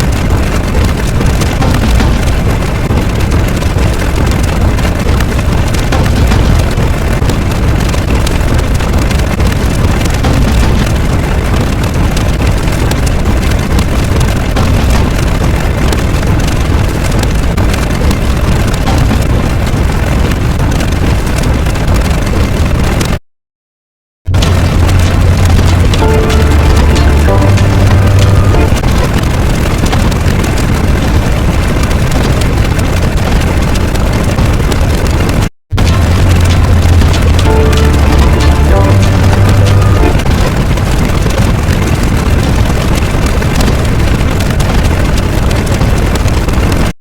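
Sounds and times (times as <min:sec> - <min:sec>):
low rumbling with crackles: 0:00.0 - 0:23.2, 0:24.3 - 0:47.0
loud engine-like roaring: 0:24.3 - 0:28.8, 0:35.8 - 0:40.4.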